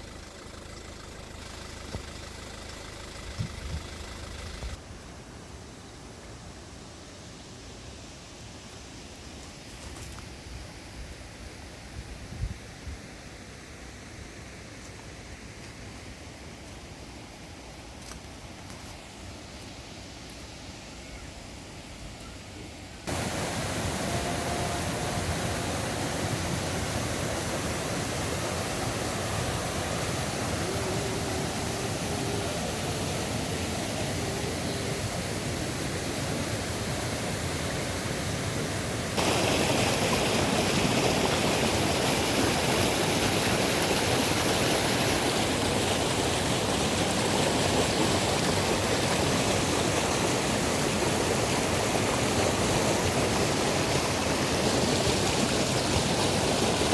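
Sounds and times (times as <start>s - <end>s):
stream water flowing: 0.0s - 5.2s, 22.8s - 56.9s.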